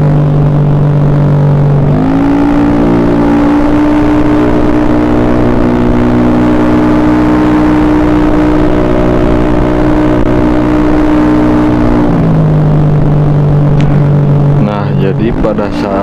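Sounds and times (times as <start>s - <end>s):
scooter engine revving: 0.0s - 16.0s.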